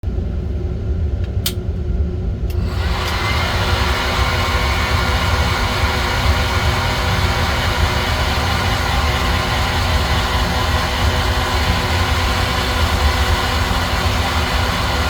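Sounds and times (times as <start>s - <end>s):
sharp switch clicks: 1.2s - 1.6s.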